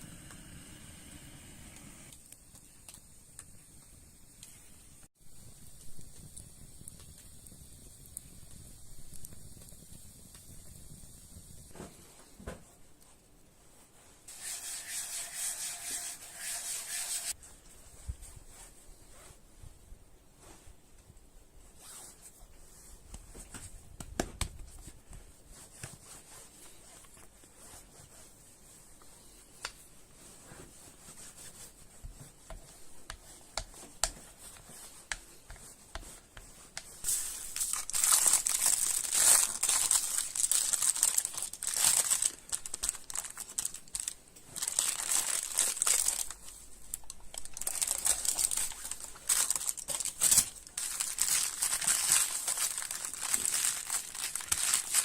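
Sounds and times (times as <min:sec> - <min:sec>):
material crinkling and rustling: 0:11.6 - 0:55.0.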